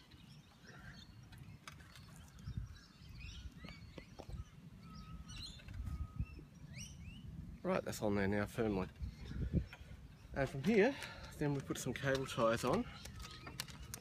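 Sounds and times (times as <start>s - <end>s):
bird chirps: 0.0s - 7.9s.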